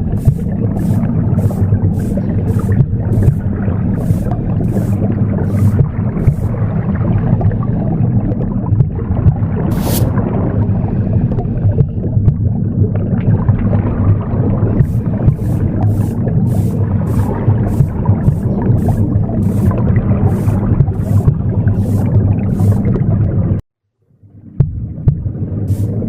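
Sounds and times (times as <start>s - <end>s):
broom swishing across floor: 0.0s - 6.6s, 9.7s - 10.1s, 14.8s - 23.0s, 25.7s - 26.0s
low whooshing womb sound: 0.0s - 23.6s.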